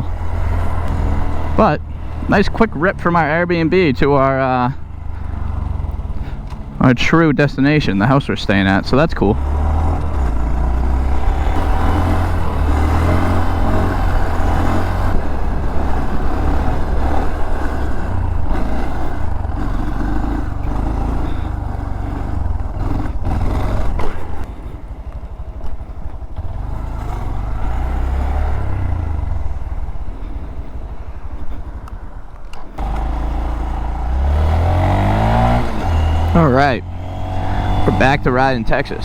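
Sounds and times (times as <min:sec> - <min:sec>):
motorcycle engine running: 0:00.0 - 0:39.0
wind noise: 0:11.0 - 0:19.6.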